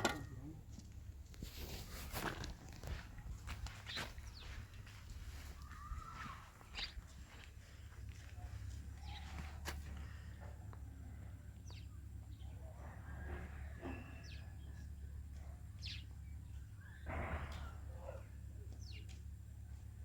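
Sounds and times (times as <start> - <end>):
rustling noise: 1.3 - 7.6
small birds chirping: 2.9 - 20.0.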